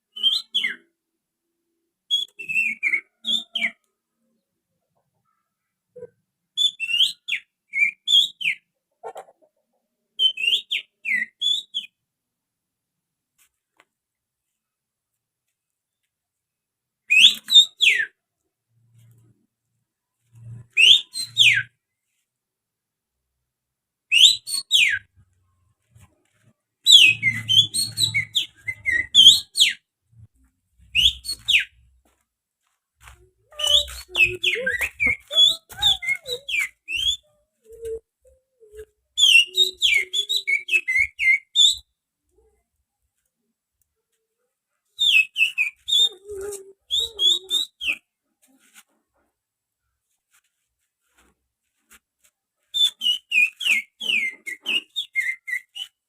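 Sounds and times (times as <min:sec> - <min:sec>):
person finger-whistling birdsong: 0:00.1 - 0:00.9, 0:02.1 - 0:03.9, 0:10.2 - 0:12.0, 0:17.1 - 0:18.2, 0:20.7 - 0:21.8, 0:24.1 - 0:25.1, 0:26.9 - 0:29.8, 0:30.9 - 0:31.7, 0:33.5 - 0:38.0, 0:38.6 - 0:41.9, 0:45.0 - 0:48.1, 0:52.8 - 0:56.0.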